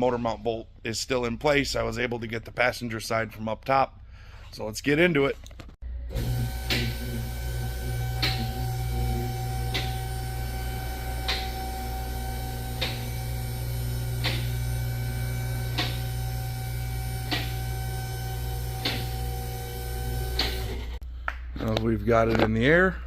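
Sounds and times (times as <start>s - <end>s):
electric pump motor humming: 6.0s - 21.0s.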